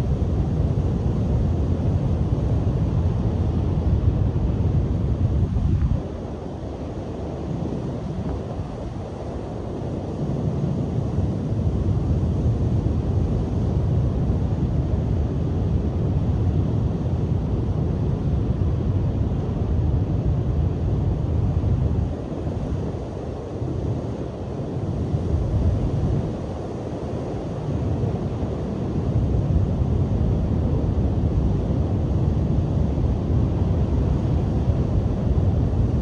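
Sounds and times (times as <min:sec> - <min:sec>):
wind buffeting microphone: 0:02.1 - 0:09.6.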